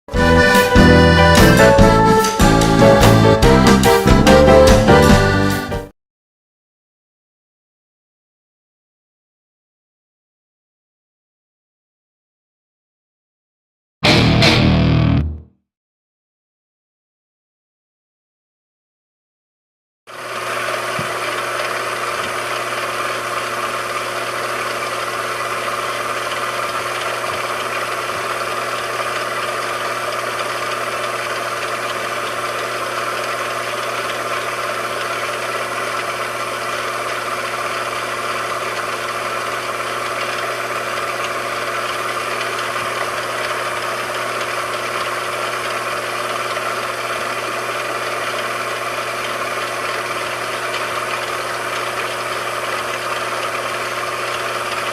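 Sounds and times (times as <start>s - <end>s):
machine tool humming: 20.1s - 54.9s.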